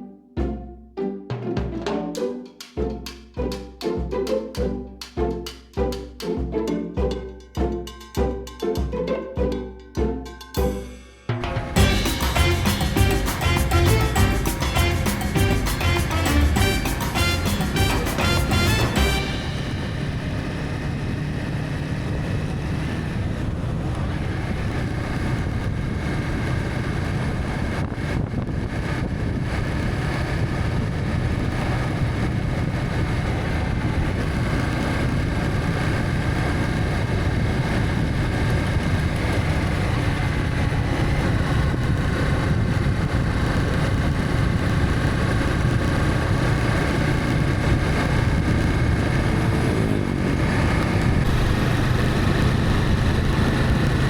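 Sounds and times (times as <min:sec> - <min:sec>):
wind and road noise: 0:11.4 - 0:54.0
motorcycle engine running: 0:11.6 - 0:54.0.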